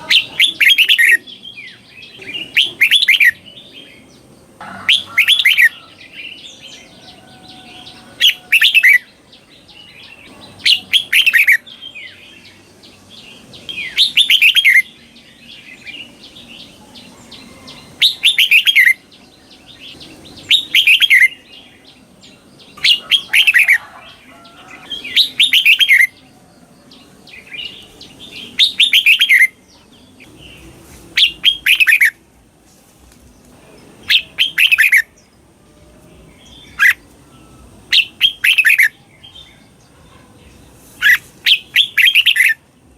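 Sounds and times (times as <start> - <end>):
bulbul whistled song: 0.0 - 4.1, 4.9 - 12.2, 13.3 - 19.1, 19.8 - 21.8, 22.8 - 26.4, 27.3 - 29.6, 31.2 - 32.2, 34.0 - 35.2, 36.2 - 39.8, 41.0 - 42.6.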